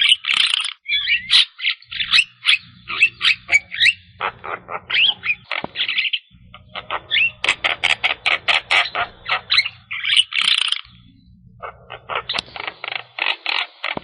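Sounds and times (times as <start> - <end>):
bird harsh chattering calls: 0.0 - 14.0
bird whistled glides: 0.8 - 4.1.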